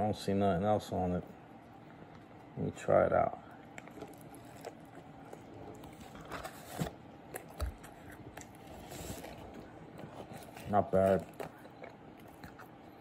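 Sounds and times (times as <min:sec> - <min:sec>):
person biting and chewing burger: 0:03.5 - 0:13.0.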